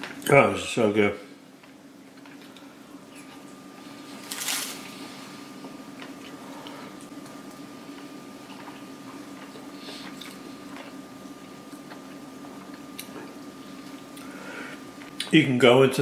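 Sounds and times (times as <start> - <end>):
steady low hum: 0.0 - 16.0
person chewing: 5.9 - 11.0, 11.6 - 14.4.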